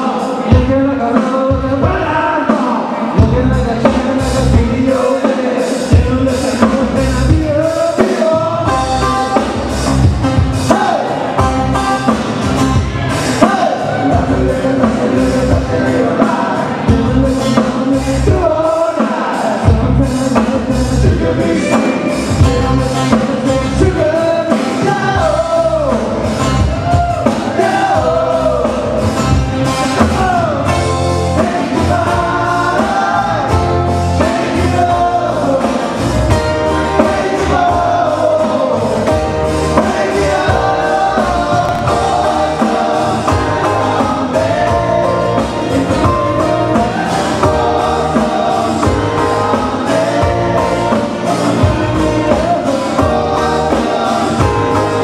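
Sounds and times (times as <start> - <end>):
live band playing: 0.0 - 55.0
people singing in harmony: 13.4 - 26.2, 27.2 - 29.0, 31.3 - 55.0.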